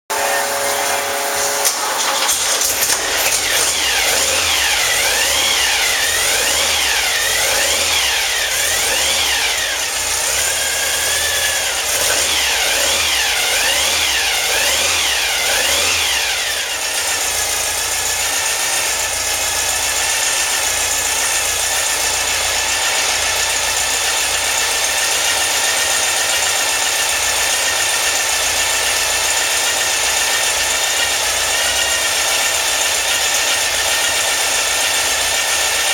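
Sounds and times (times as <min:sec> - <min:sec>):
car engine revving and idling: 0:00.1 - 0:35.9.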